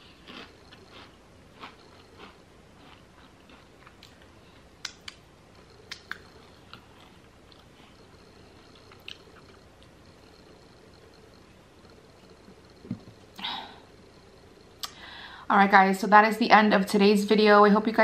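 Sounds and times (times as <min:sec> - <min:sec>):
person chewing food: 0:00.0 - 0:11.4
wet mouth clicks and smacks: 0:04.8 - 0:05.2, 0:05.9 - 0:06.3.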